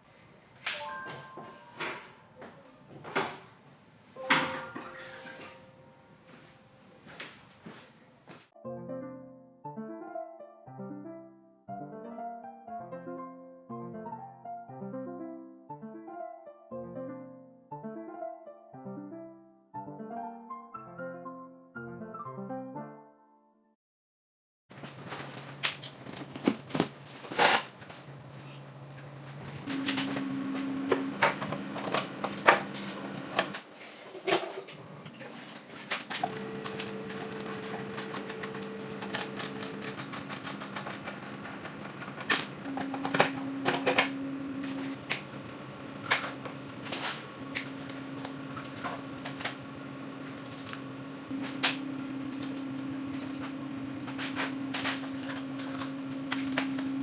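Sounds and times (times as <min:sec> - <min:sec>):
steady low hum: 0:36.2 - 0:57.0
hand tools clicking and clinking: 0:39.0 - 0:44.1.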